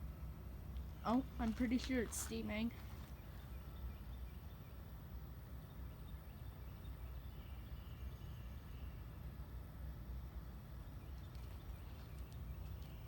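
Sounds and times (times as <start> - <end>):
heat pump low hum: 0.0 - 13.0.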